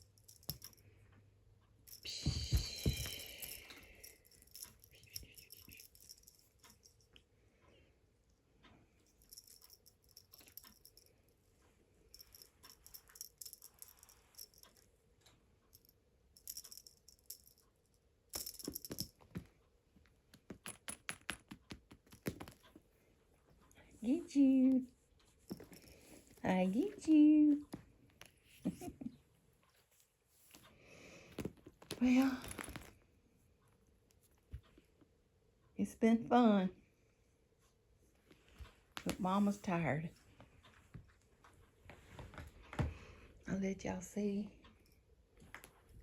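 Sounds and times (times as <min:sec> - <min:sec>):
cat toy rattling and jingling: 0:01.9 - 0:07.0, 0:18.4 - 0:19.2.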